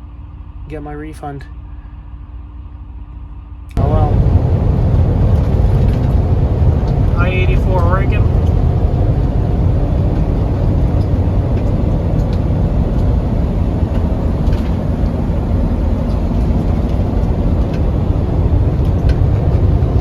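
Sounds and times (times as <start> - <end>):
truck engine and road noise: 0.0 - 20.0.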